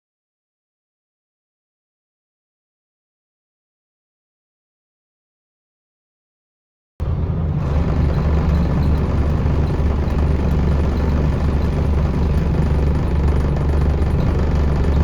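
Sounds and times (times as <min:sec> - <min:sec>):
diesel bus engine droning: 0:07.0 - 0:15.0.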